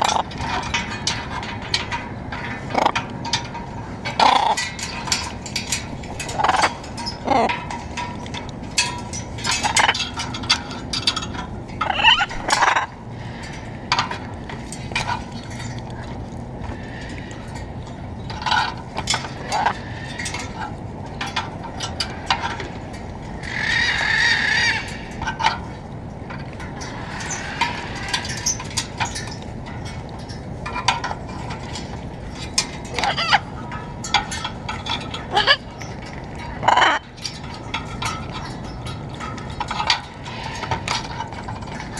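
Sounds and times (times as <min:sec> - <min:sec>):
macaws squawking: 0:11.8 - 0:12.9, 0:23.4 - 0:25.1, 0:33.0 - 0:33.4, 0:36.6 - 0:37.1.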